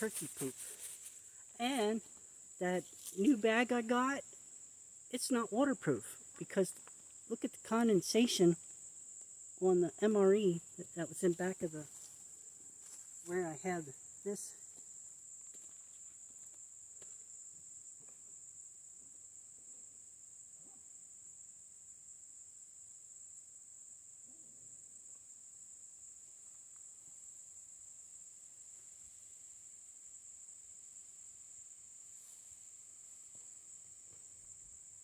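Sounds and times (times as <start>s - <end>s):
soft rustles: 0.0s - 3.2s
insects buzzing: 0.0s - 35.0s.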